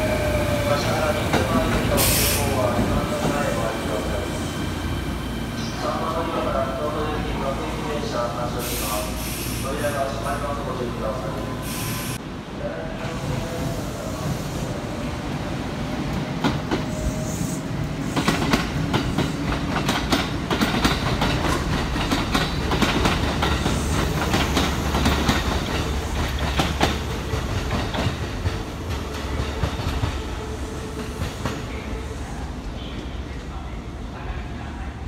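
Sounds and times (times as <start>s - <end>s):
train low rumble: 0.0s - 35.0s
train wheels clattering over rails: 18.0s - 30.2s.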